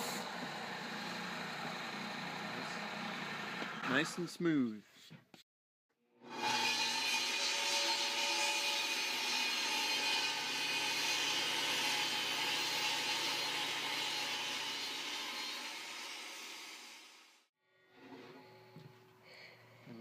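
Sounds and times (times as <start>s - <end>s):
power woodworking tool whining: 0.0s - 4.0s, 6.2s - 17.4s.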